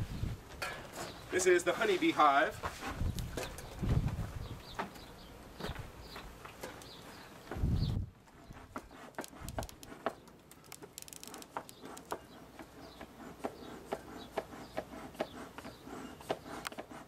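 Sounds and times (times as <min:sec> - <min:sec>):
wooden beehive clicking and knocking: 0:09.1 - 0:13.1.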